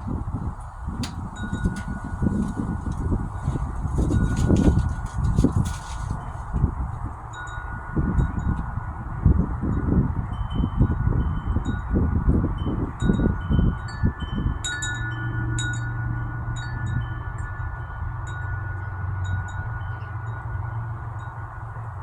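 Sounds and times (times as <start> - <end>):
wind buffeting microphone: 0.0 - 22.0
wind chime ringing: 1.3 - 2.7, 12.6 - 21.6.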